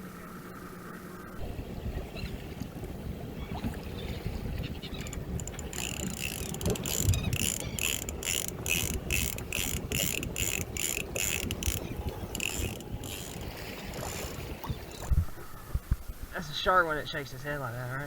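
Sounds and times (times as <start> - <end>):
fishing reel ratcheting: 5.0 - 14.5.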